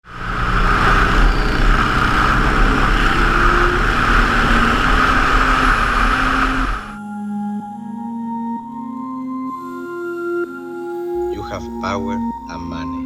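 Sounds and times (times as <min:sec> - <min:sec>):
motorcycle engine running: 0:00.0 - 0:07.0
wind noise: 0:00.0 - 0:07.0.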